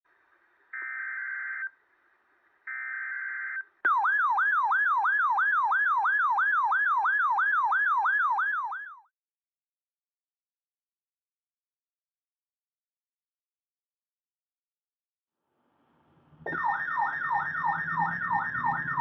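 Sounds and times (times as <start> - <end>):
alert tone sweeping down: 16.4 - 19.0.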